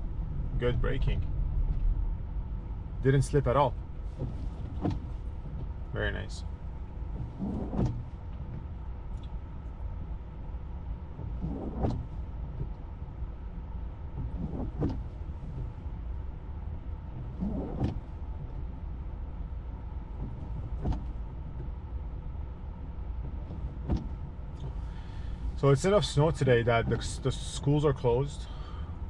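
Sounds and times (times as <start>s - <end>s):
road noise rumble: 0.0s - 29.0s
windshield wipers swishing: 0.0s - 29.0s
wiper motor whirring: 6.6s - 27.5s.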